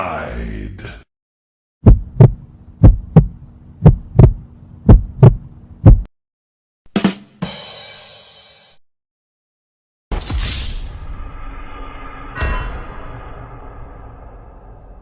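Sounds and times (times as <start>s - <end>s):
heartbeat thumps: 1.8s - 6.1s.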